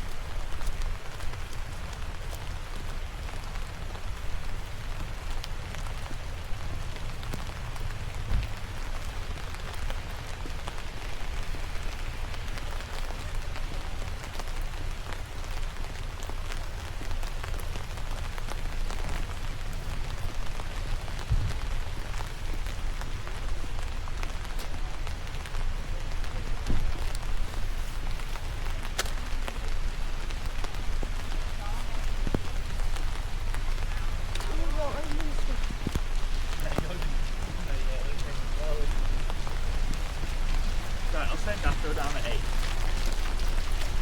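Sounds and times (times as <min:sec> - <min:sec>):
rain pattering: 0:00.0 - 0:44.0.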